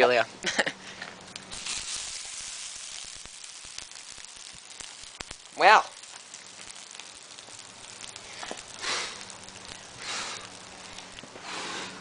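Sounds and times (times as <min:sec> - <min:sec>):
fire crackling and popping: 0:00.0 - 0:12.0
breathy hisses: 0:08.0 - 0:12.0.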